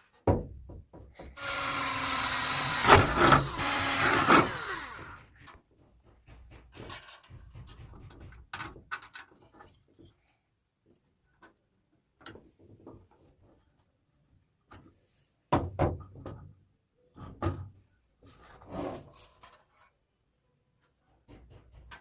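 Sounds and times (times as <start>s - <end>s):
knocks: 0.2s - 1.4s
scraping sounds: 18.2s - 20.0s.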